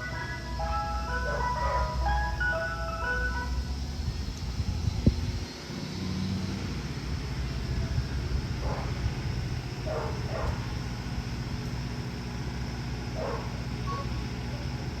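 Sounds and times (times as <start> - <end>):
low engine rumble: 0.0 - 15.0
dog barking: 1.2 - 2.0, 8.6 - 9.0, 9.8 - 10.7, 13.2 - 13.6.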